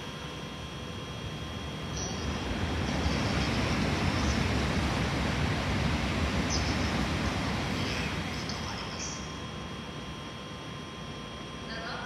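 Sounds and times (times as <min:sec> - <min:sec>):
train rumbling on tracks: 0:01.6 - 0:09.4.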